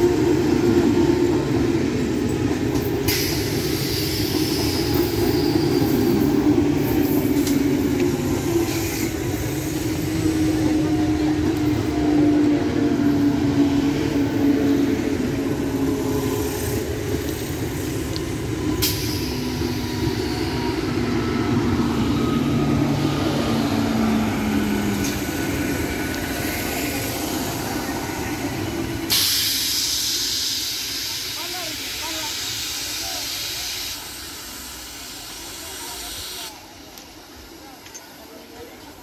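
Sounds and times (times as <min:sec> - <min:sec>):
train wheels rumbling on rail: 0:00.0 - 0:39.0
loud hiss: 0:02.8 - 0:10.7, 0:14.6 - 0:21.2, 0:25.1 - 0:36.9.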